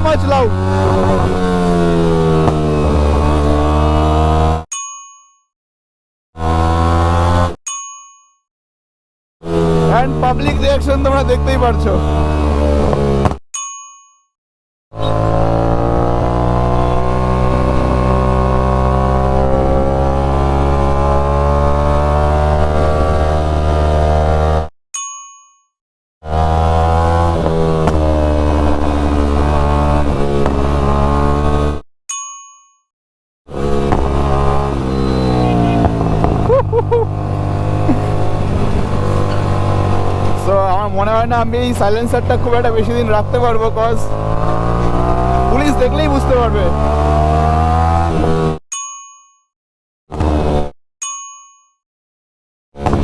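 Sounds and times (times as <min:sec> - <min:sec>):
loud motorcycle exhaust: 0:00.0 - 0:04.7, 0:06.4 - 0:07.6, 0:09.4 - 0:13.4, 0:15.0 - 0:24.7, 0:26.2 - 0:31.8, 0:33.5 - 0:48.6, 0:50.1 - 0:50.7, 0:52.8 - 0:53.0
short high chirps: 0:34.9 - 0:35.8.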